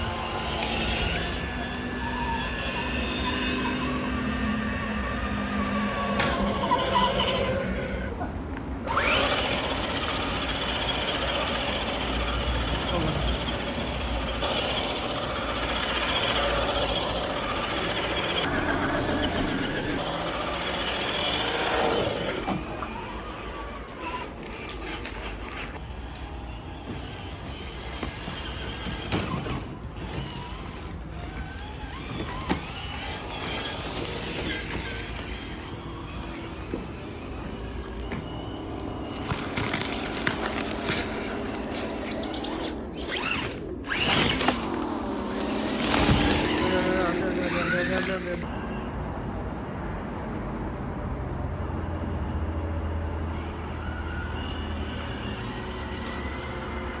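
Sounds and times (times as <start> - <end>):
electric motor and gears whining: 0.0 - 48.6, 53.0 - 57.0
tyres crunching and scraping: 19.7 - 48.5.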